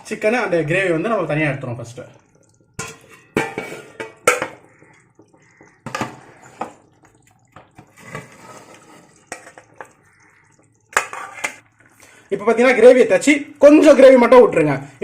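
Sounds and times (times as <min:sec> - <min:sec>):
liquid pouring and dripping: 0:00.0 - 0:15.0
ladle knocking against pot: 0:02.8 - 0:06.9.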